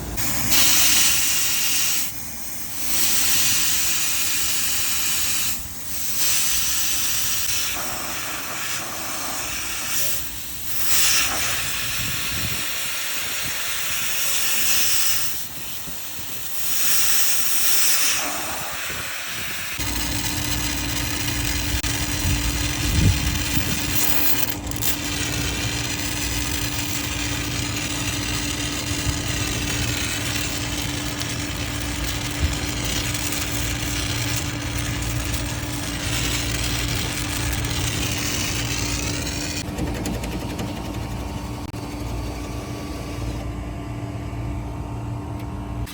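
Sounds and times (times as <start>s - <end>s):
pressurised gas hissing: 0.1s - 39.6s
motor humming: 19.8s - 45.9s.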